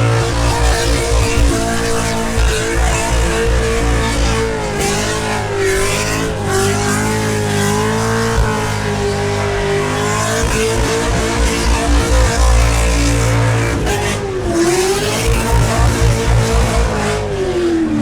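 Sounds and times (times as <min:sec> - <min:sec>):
engine at high revs: 0:00.0 - 0:18.0.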